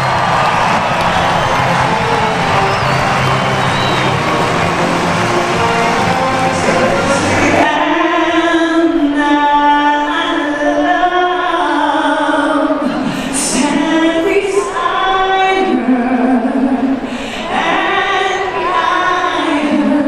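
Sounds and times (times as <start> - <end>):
woman singing unaccompanied: 6.7 - 20.0.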